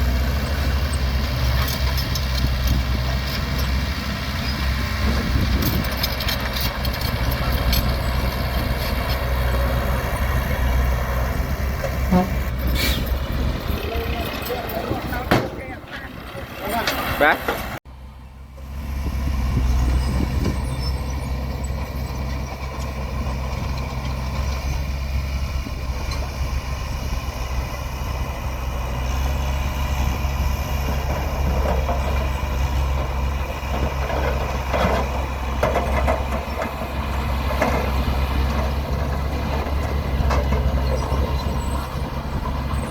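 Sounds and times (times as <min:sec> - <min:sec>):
truck engine droning: 0:00.0 - 0:42.9
knocks and rattles: 0:11.8 - 0:17.7, 0:33.7 - 0:41.7.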